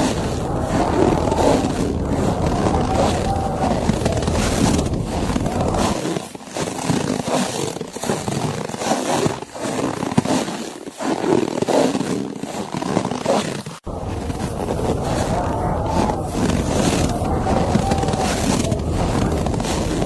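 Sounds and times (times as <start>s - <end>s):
low wind rumble: 0.0s - 6.0s, 13.9s - 20.0s
snow crunching: 0.0s - 6.0s, 13.9s - 20.0s.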